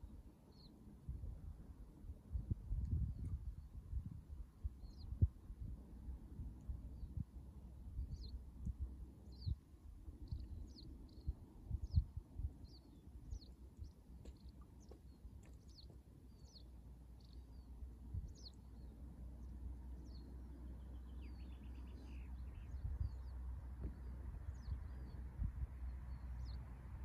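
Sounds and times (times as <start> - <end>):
small bird chirping: 8.0 - 8.4, 9.2 - 9.6, 10.2 - 25.3.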